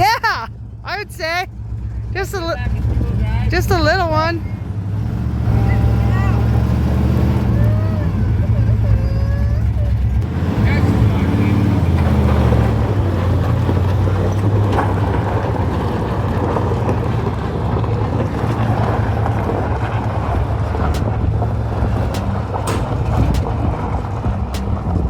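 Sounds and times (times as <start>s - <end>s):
truck engine droning: 0.0s - 25.0s
sharp clicks: 20.8s - 21.3s, 21.9s - 23.9s.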